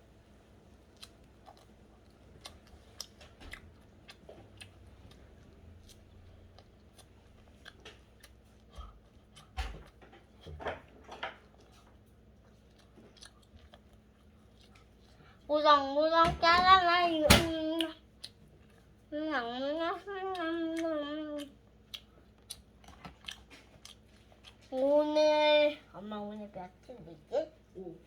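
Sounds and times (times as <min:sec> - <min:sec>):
chewing mouth clicks and smacks: 0:00.9 - 0:10.5, 0:11.3 - 0:15.3, 0:17.8 - 0:18.9, 0:20.7 - 0:24.7.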